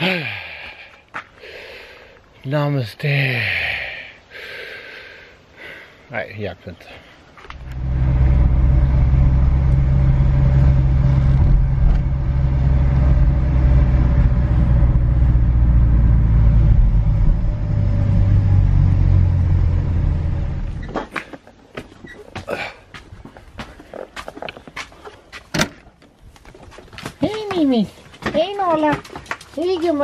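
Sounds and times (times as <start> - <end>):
car engine and road hum: 7.4 - 21.1.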